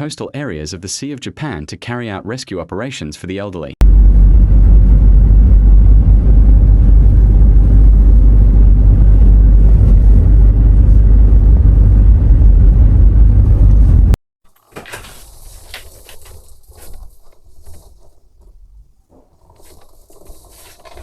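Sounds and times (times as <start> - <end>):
loud low rumble: 3.8 - 14.2.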